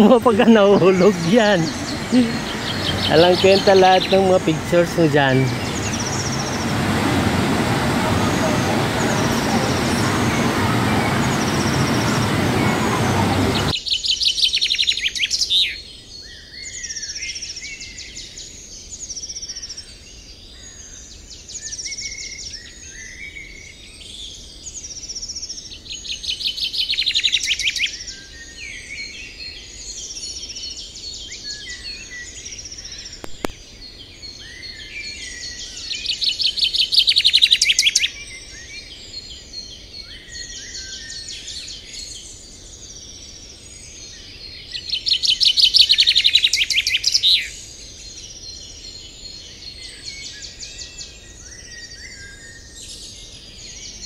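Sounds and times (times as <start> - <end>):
birds chirping and singing: 0.0 - 13.7
loud rapid bird trill: 0.0 - 13.8.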